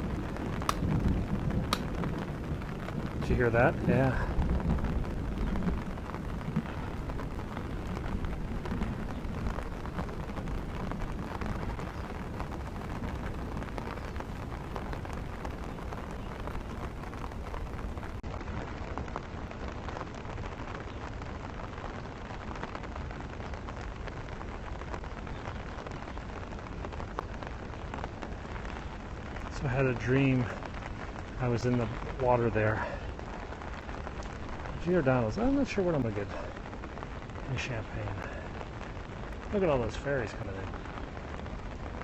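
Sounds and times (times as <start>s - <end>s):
low rumble: 0.0s - 19.0s
heavy rain: 0.0s - 42.0s.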